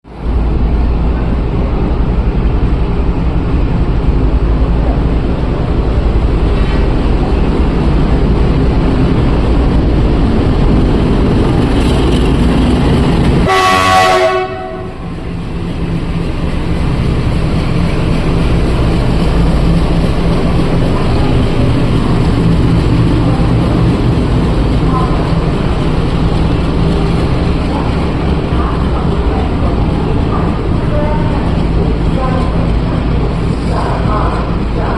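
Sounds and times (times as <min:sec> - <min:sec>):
train diesel engine rumbling: 0:00.0 - 0:34.9
train horn blast: 0:13.4 - 0:15.1.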